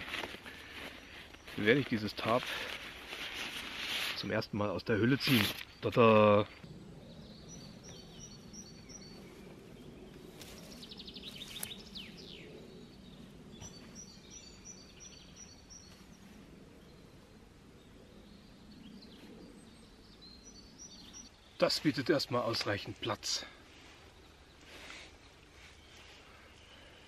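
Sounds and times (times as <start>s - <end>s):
songbird singing: 0.0s - 2.9s, 4.4s - 27.0s.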